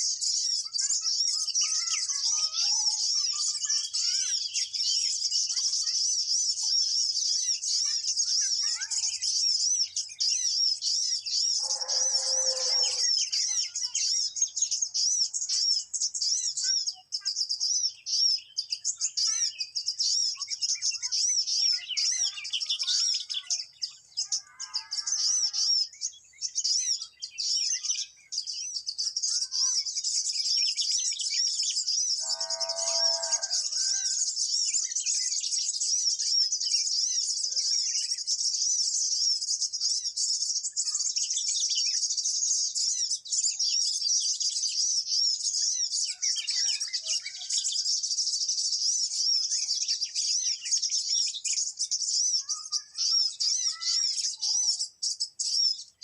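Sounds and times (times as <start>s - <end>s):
high-pitched bird chirping: 0.0s - 56.0s
short lower bird calls: 11.5s - 13.2s, 32.2s - 34.3s.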